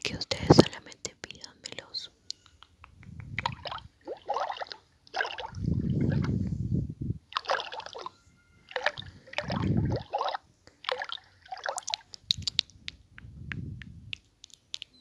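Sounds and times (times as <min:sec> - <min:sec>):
liquid sloshing and gurgling: 0:03.4 - 0:06.5, 0:07.3 - 0:12.7.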